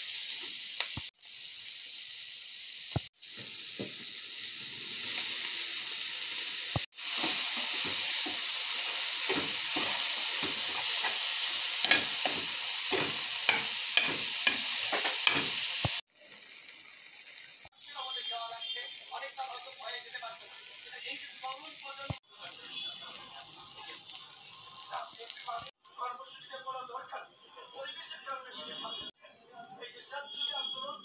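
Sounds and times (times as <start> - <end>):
shrimp sizzling in oil: 0.0 - 25.8
utensil tapping and scraping pan: 11.9 - 15.6.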